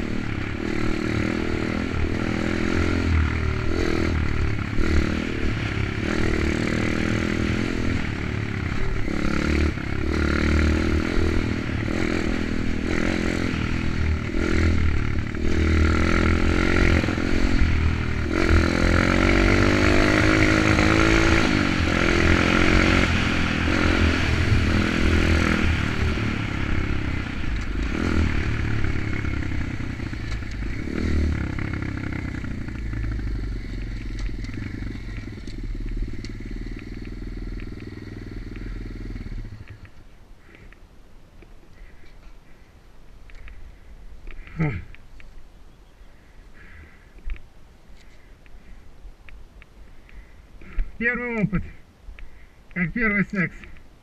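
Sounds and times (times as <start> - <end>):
pit bike engine revving: 0.0 - 40.6.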